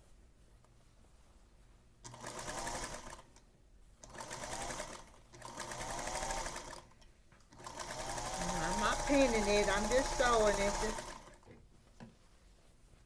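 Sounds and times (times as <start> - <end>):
electric sewing machine stitching: 2.1 - 3.3, 4.1 - 6.9, 7.6 - 11.5.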